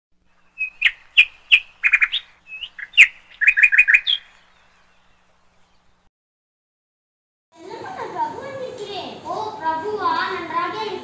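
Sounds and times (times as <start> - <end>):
small bird chirping: 0.2 - 6.1.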